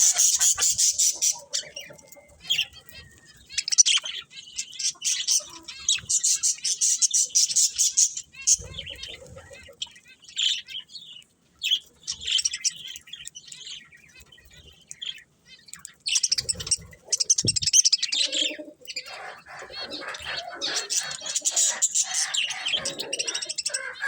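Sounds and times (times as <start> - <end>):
budgerigars chirping: 0.0 - 9.8, 16.1 - 24.0.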